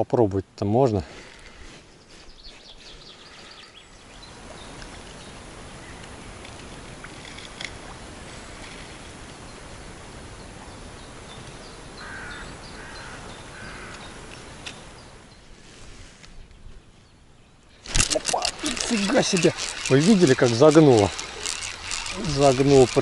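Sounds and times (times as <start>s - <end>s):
outdoor background hiss: 0.0s - 23.0s
bird cawing: 12.0s - 14.2s
faint clicks: 17.8s - 23.0s.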